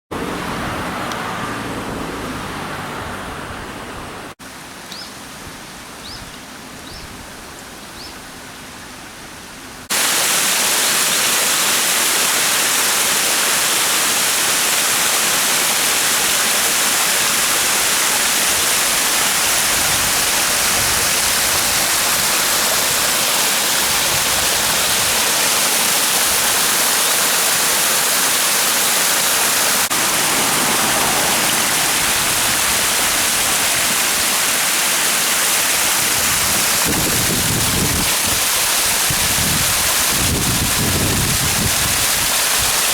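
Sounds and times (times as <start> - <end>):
waterfall rushing: 9.8 - 42.9.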